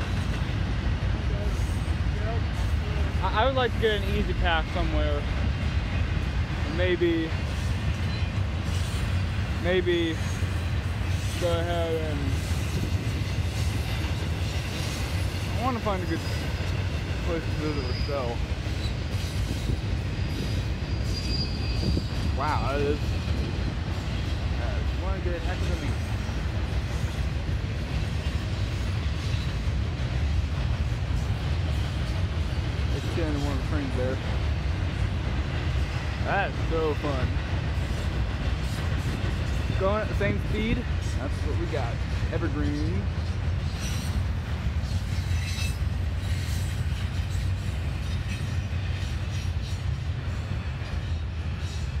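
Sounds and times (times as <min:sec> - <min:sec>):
freight train wheels rumbling: 0:00.0 - 0:52.0
rushing noise of train cars: 0:00.0 - 0:52.0
high-pitched clicks and squeals: 0:20.3 - 0:22.2.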